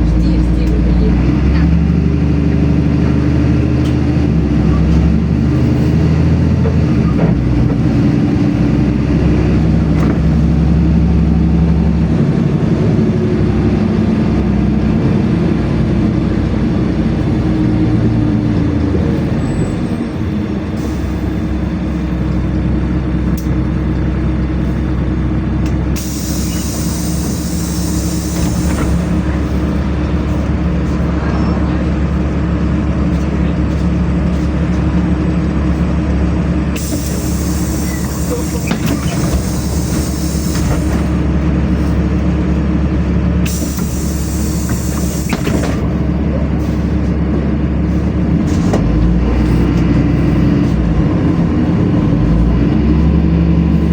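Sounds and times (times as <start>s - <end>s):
bus engine drone: 0.0s - 53.9s
compressed air hiss: 26.0s - 28.7s.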